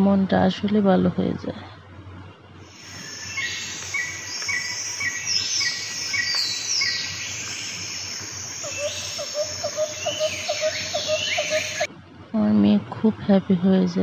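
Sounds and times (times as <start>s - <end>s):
steady high hiss: 2.6s - 11.9s
bird chirping: 2.7s - 11.9s
lower bird call: 2.7s - 11.9s
falling whistled bird notes: 2.8s - 11.9s.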